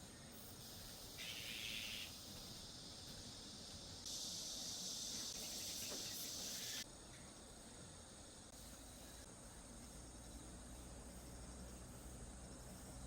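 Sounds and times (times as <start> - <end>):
faint steady background: 0.0 - 13.0
insects buzzing drone: 0.1 - 13.0
high hissing insect buzz: 0.2 - 13.0.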